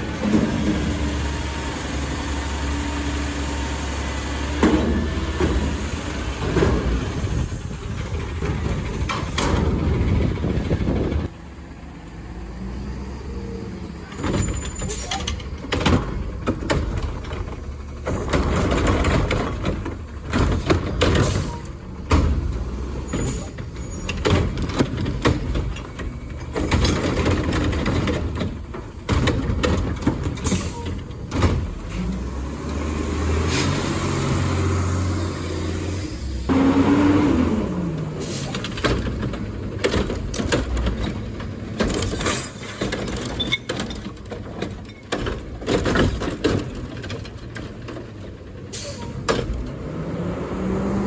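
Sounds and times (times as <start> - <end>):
garbage truck engine revving: 0.0 - 51.0
sharp knocks and bangs: 4.5 - 7.3.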